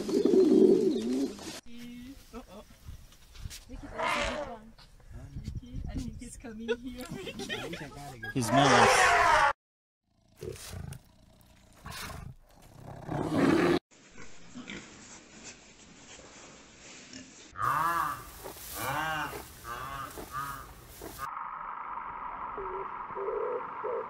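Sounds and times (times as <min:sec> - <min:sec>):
elephant calling: 0:22.3 - 0:24.0.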